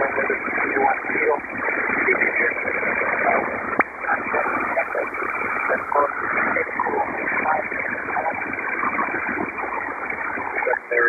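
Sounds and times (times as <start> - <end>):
faint garbled voice: 4.1 - 8.4
radio static hiss: 4.1 - 11.0.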